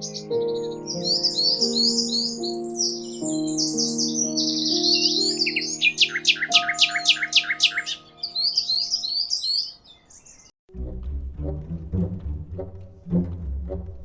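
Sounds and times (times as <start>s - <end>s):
songbird chirping: 0.0s - 14.0s
music with plucked bass: 10.7s - 14.0s.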